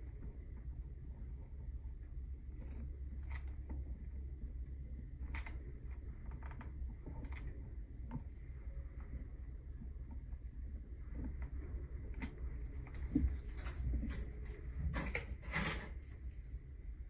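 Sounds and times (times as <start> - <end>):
steady low hum: 0.0 - 17.0
small clicks and snips: 2.5 - 3.9, 5.2 - 8.3.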